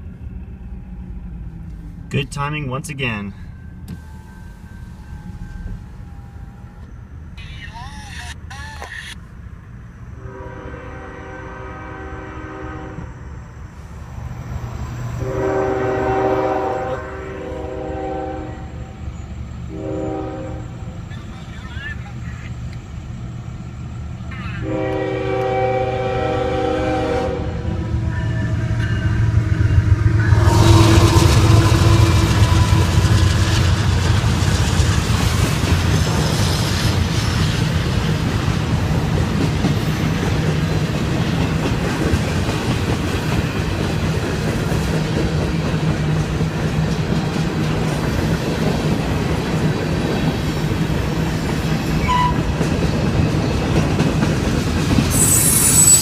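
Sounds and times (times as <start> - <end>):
locomotive passing loudly: 8.3 - 56.0
locomotive air horn: 10.2 - 13.2, 15.2 - 18.8, 19.7 - 20.8, 24.6 - 28.8, 30.2 - 33.6, 52.0 - 52.4
freight cars clacking on rails: 28.2 - 56.0.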